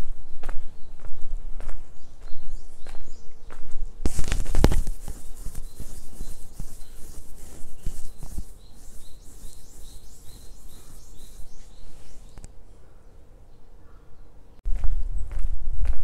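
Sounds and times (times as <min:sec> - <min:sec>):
small bird chirping: 0:00.0 - 0:14.0.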